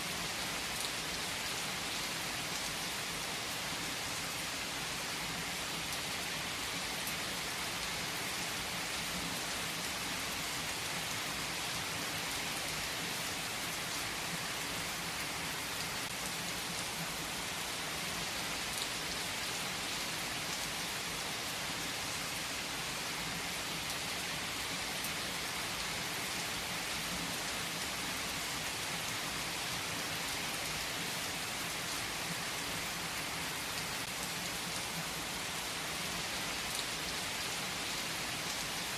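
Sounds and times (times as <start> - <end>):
rain hissing on a surface: 0.0 - 38.9.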